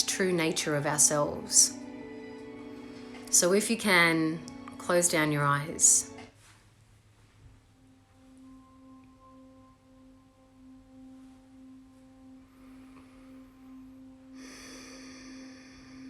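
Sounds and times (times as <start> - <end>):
faint steady held tone: 7.7 - 16.0.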